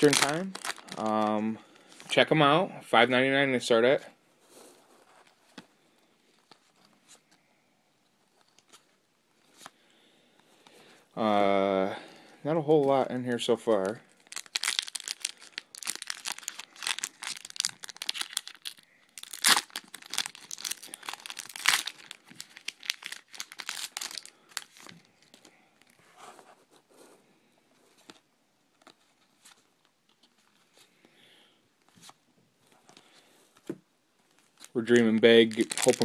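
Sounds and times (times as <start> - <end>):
card packs torn open: 0.0 - 1.3, 14.1 - 25.9, 34.4 - 36.0
wrappers crinkling: 0.0 - 2.2, 13.8 - 26.0, 34.2 - 36.0.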